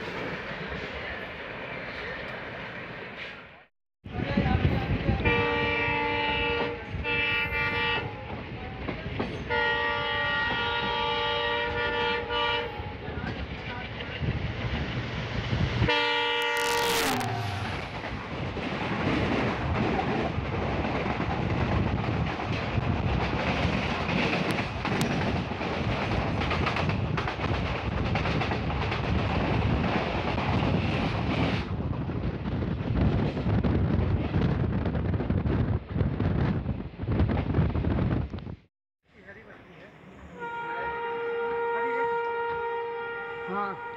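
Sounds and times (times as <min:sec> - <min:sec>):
locomotive horn blasts: 0:05.2 - 0:08.2, 0:09.5 - 0:13.0, 0:15.9 - 0:17.8, 0:40.3 - 0:43.9.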